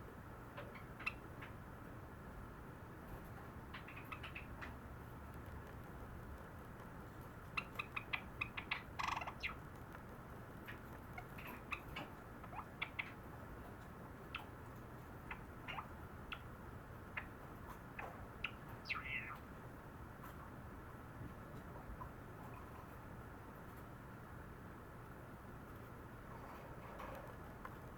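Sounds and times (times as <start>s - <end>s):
sparrow singing softly: 3.1s - 4.8s, 7.4s - 20.5s.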